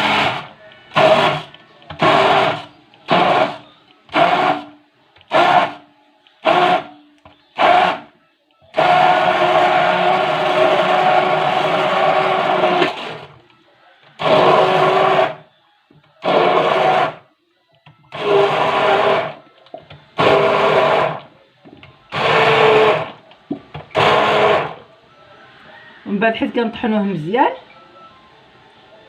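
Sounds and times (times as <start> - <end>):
blender grinding: 0.0 - 4.7, 5.3 - 5.8, 6.4 - 6.9, 7.6 - 8.1, 8.7 - 13.4, 14.2 - 15.5, 16.2 - 17.2, 18.1 - 19.4, 20.2 - 21.3, 22.1 - 23.2, 23.8 - 24.8.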